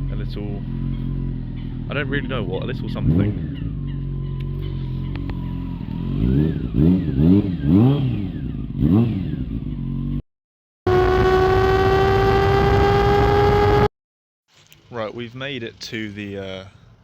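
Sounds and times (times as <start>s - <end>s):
motorcycle engine revving: 0.0s - 10.2s, 10.9s - 13.9s
high engine note at speed: 10.9s - 13.9s.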